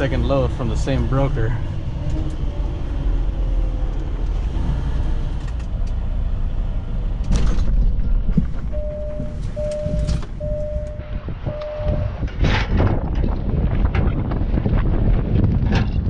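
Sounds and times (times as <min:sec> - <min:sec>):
truck engine rumbling: 0:00.0 - 0:14.0
electronic beeping: 0:08.7 - 0:12.2.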